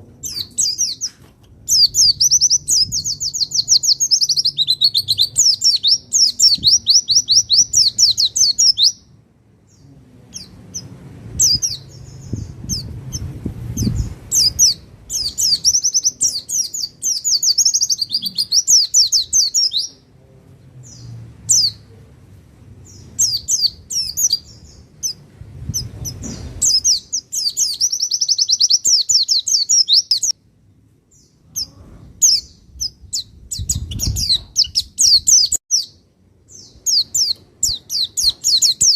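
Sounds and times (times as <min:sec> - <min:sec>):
faint low rumble: 0:19.1 - 0:27.4.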